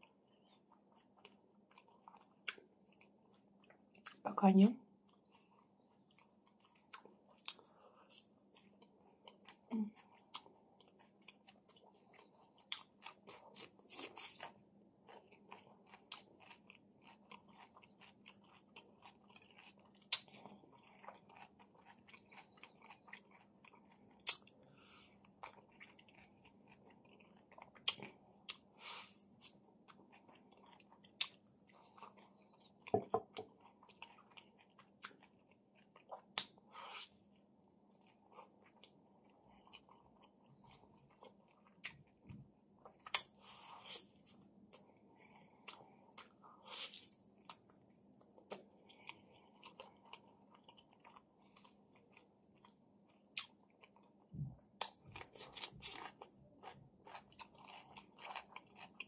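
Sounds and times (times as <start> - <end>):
faint steady hum: 0.0 - 59.0
chewing and wet mouth clicks: 0.4 - 4.2, 10.2 - 24.6, 25.2 - 28.7, 29.4 - 32.7, 54.8 - 59.0.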